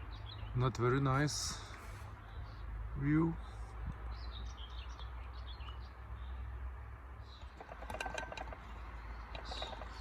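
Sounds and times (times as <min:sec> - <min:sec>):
metal parts clicking and clinking: 0:07.5 - 0:08.7.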